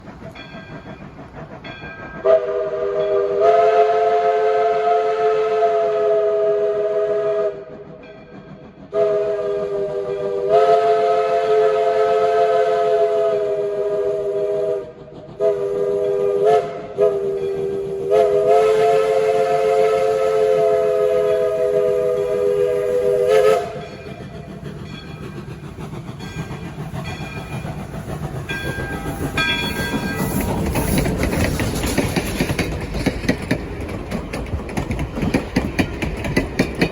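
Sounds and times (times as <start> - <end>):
locomotive rumble: 0.0 - 4.7, 5.9 - 36.9
steam locomotive whistle: 2.2 - 8.0, 8.9 - 24.4, 28.5 - 31.7.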